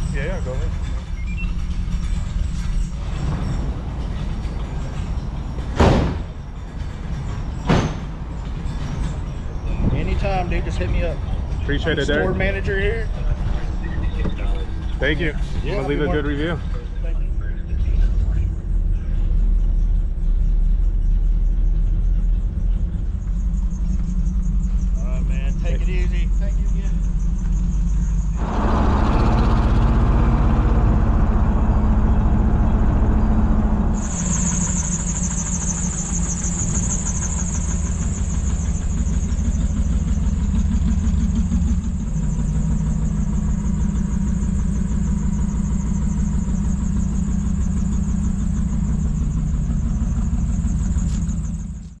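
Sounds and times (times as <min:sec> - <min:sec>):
car engine running: 0:00.0 - 0:52.0
hiss: 0:34.0 - 0:40.0.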